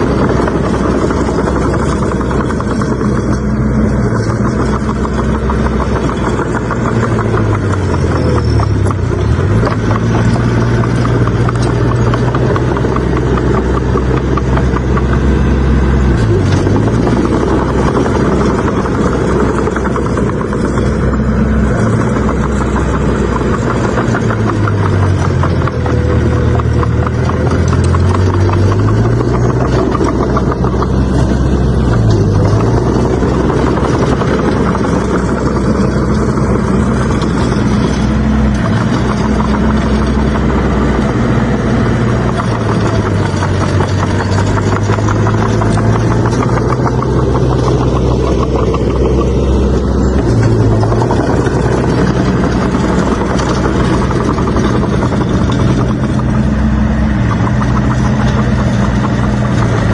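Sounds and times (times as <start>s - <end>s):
bulldozer diesel engine under load: 0.0s - 59.9s
mechanical clatter: 0.0s - 59.9s.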